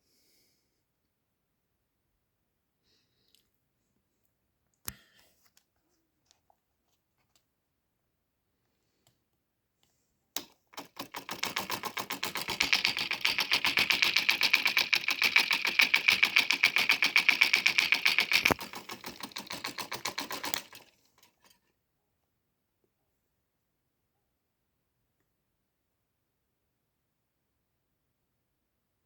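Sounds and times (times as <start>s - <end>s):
electric motor clicking rapidly: 10.4s - 21.5s.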